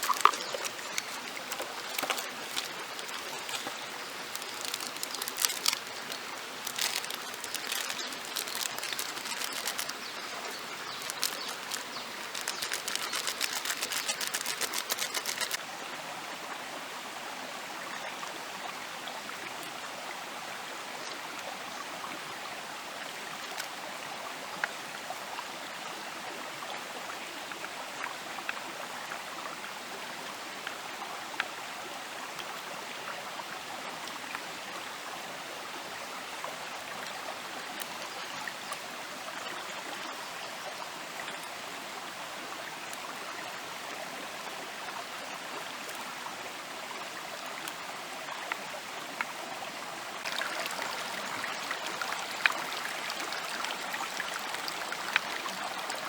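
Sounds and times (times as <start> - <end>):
dense fine crackling: 0.0 - 15.6.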